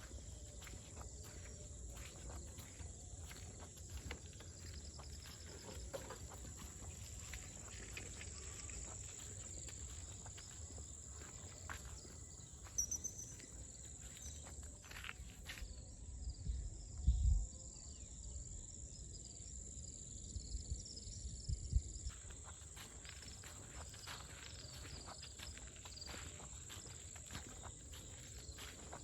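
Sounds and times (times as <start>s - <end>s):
footsteps: 0.0s - 15.6s, 22.1s - 29.0s
bird chirp: 4.6s - 14.5s.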